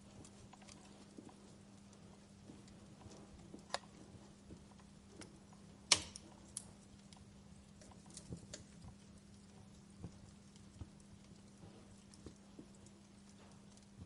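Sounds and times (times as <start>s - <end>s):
faint low hum: 0.0s - 14.0s
wood fire crackling: 0.0s - 14.0s.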